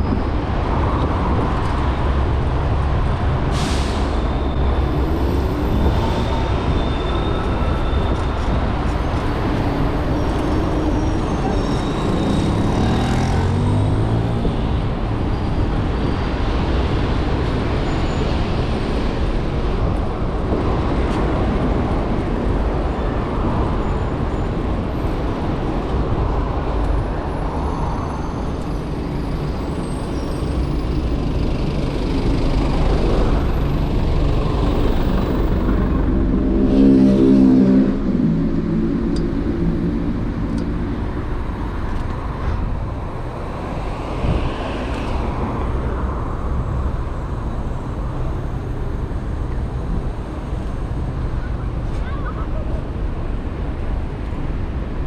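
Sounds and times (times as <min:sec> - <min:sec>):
road traffic rumbling: 0:00.0 - 0:55.0.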